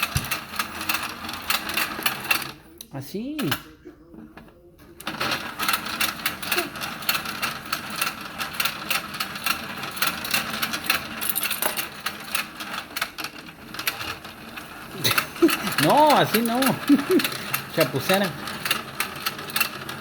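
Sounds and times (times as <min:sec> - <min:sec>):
toy motor clicking rattle: 0:05.1 - 0:20.0.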